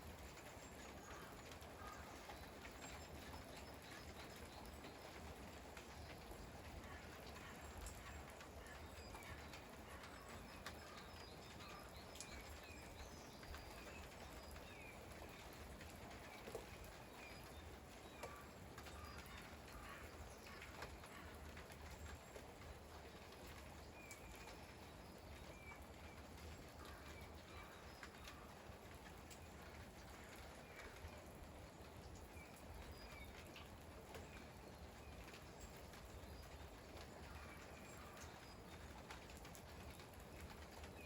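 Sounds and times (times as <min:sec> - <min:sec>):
light rain patter: 0:00.0 - 0:41.0
water drips: 0:00.1 - 0:41.0
small birds chirping: 0:05.9 - 0:22.4, 0:32.2 - 0:41.0.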